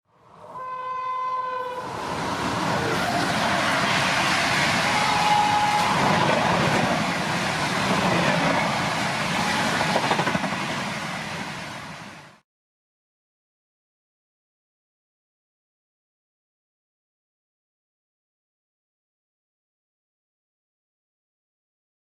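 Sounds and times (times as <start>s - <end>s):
train passing with rail clatter: 0.2s - 12.4s
locomotive horn: 0.4s - 2.0s, 2.8s - 6.3s.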